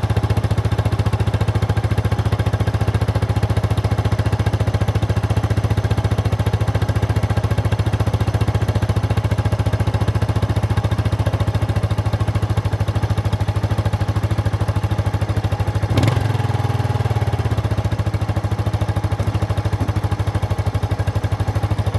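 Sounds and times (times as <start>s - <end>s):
motorcycle engine idling: 0.0s - 21.9s.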